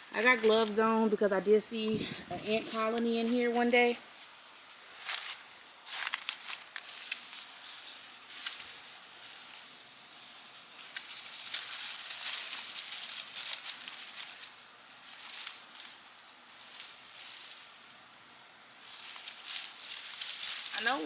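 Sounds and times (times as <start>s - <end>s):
leaves and soil rustling: 0.0s - 21.0s.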